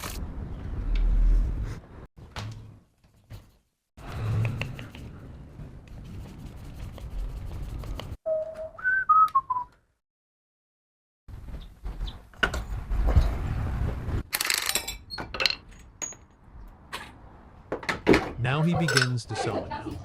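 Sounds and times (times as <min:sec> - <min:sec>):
person whistling: 0:08.3 - 0:09.8.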